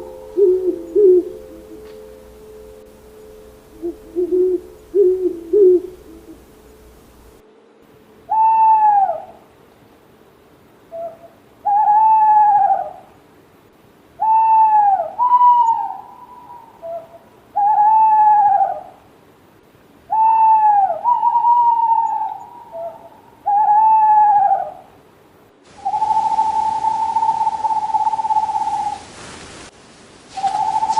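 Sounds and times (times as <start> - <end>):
owl hooting: 0.0 - 2.0, 3.2 - 7.4, 8.3 - 9.5, 10.9 - 13.1, 14.2 - 19.0, 20.1 - 24.9, 25.7 - 29.1, 30.3 - 30.9
steady held tone with hiss: 0.0 - 30.9.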